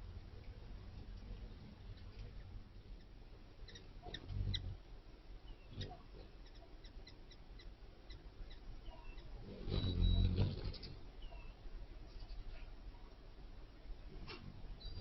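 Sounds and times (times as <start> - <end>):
bats squeaking and chirping: 3.0 - 4.8, 5.5 - 11.6.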